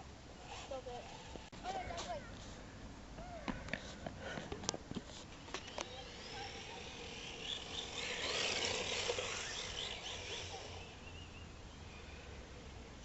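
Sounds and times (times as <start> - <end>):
tyres hissing on concrete: 5.2 - 11.0.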